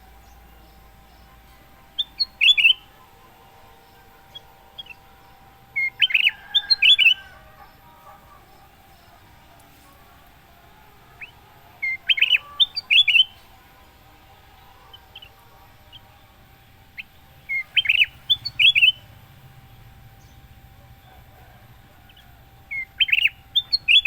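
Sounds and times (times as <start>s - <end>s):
bird singing whistled notes: 0.0s - 7.7s, 11.1s - 13.4s, 16.9s - 19.2s, 22.0s - 24.0s
faint steady hum: 0.0s - 24.0s.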